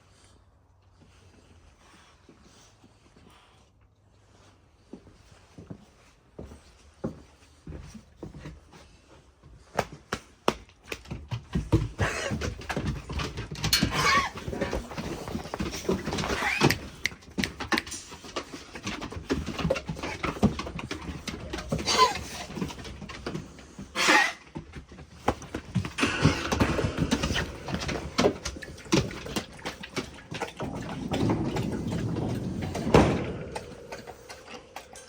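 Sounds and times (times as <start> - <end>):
dogs panting: 12.0 - 35.0
dog whining calls: 13.9 - 14.5
clicks and knocks: 25.3 - 35.0.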